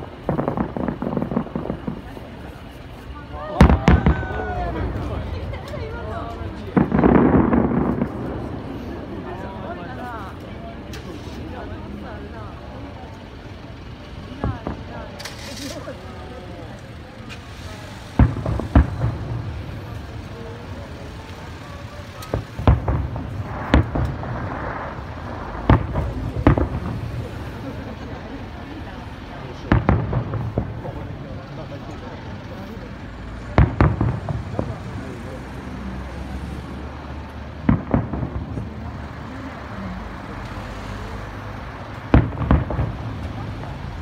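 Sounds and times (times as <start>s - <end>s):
fireworks bangs: 0.0s - 13.2s, 14.1s - 44.0s
low rumbling echo: 0.0s - 15.4s, 22.3s - 35.8s.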